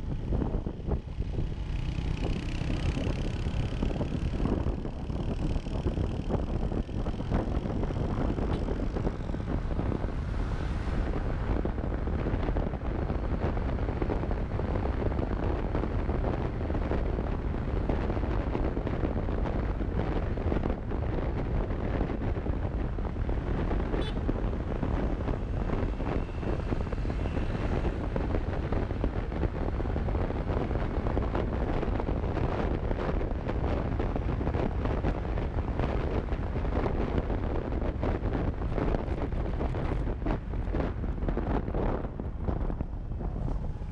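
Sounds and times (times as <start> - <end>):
motorcycle engine running: 0.0 - 10.4
wind buffeting microphone: 0.0 - 43.9.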